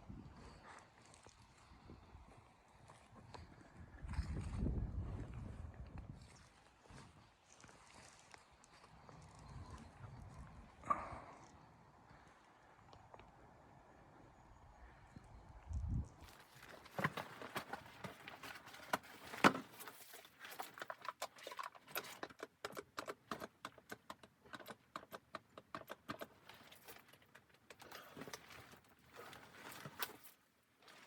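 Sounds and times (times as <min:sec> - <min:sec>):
small clicks and knocks: 0:20.6 - 0:28.6.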